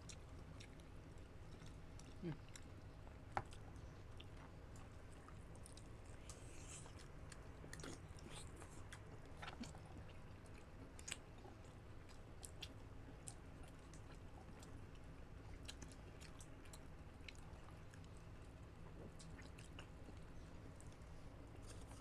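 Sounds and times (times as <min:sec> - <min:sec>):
chewing and wet mouth sounds: 0:00.0 - 0:22.0.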